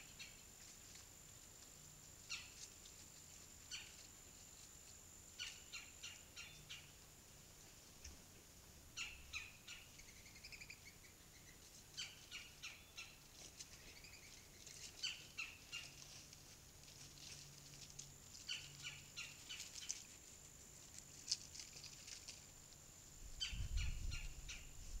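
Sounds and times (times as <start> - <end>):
faint bird chirps: 3.6 - 4.4, 5.4 - 7.0, 8.9 - 16.2, 23.3 - 25.0.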